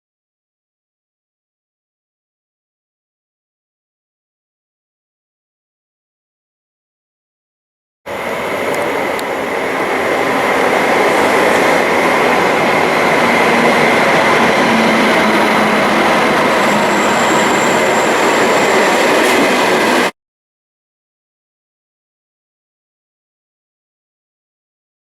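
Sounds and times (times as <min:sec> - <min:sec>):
train wheels rushing on track: 0:08.1 - 0:20.1
thin high squeal: 0:10.2 - 0:20.1.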